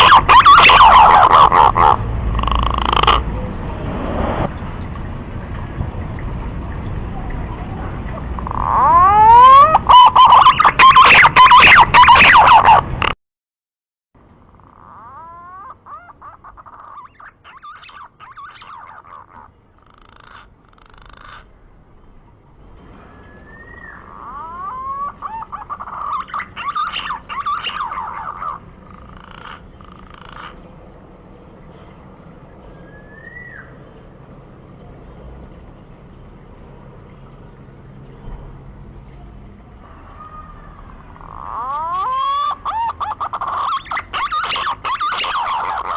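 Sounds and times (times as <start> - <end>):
pigeon calls: 0.0 - 3.3, 8.2 - 13.2, 14.5 - 21.5, 23.2 - 30.6, 40.2 - 45.9
steady low rumble: 1.2 - 8.7
pigeon whistled note: 23.2 - 24.0, 32.8 - 33.8.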